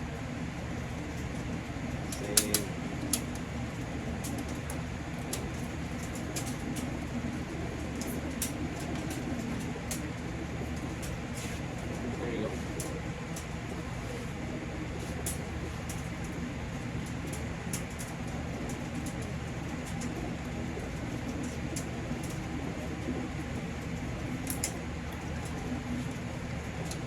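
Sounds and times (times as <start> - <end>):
low mechanical hum: 0.0 - 27.0
light clicks and taps: 2.1 - 3.4.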